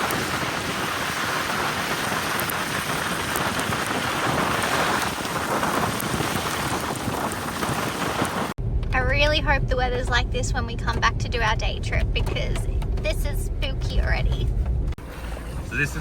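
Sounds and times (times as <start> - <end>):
heavy rain falling: 0.0 - 8.6.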